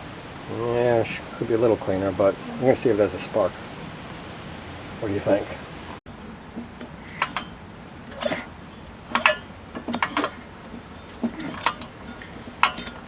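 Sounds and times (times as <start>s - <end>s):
recoil pull-starter cranking engine: 6.1s - 13.0s.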